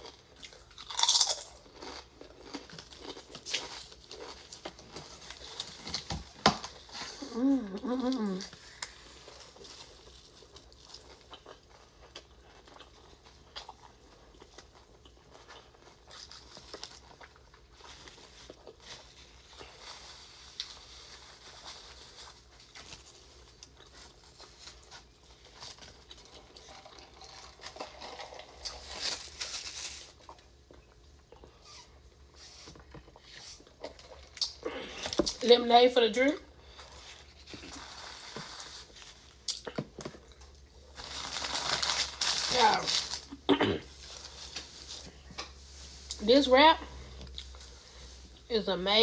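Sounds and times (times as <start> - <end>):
person chewing food: 0.0 - 35.4, 36.5 - 42.0, 46.8 - 48.4.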